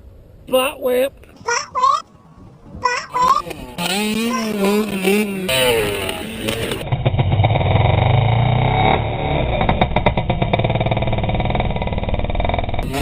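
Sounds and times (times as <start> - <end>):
person speaking: 0.5 - 2.0, 2.8 - 4.9.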